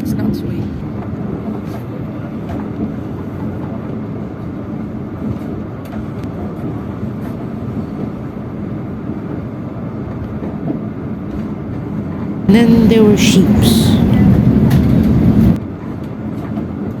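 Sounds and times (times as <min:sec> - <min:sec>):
train rumble: 0:12.5 - 0:15.6.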